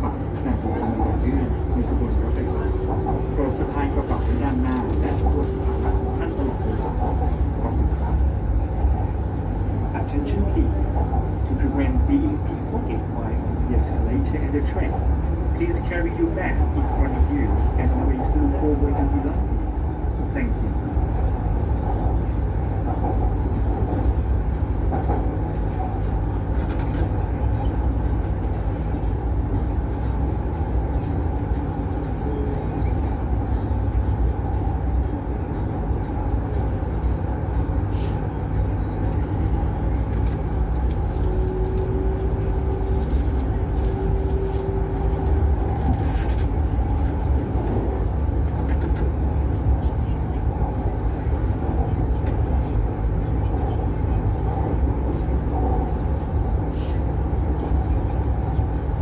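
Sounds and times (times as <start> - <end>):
train wheels rumbling: 0.0 - 59.0.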